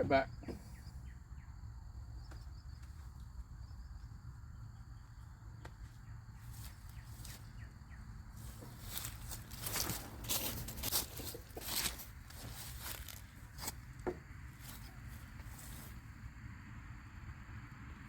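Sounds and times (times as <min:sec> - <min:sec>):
insects chirring: 0:00.0 - 0:18.0
low constant rumble: 0:00.0 - 0:18.0
rustling footsteps: 0:05.6 - 0:16.0.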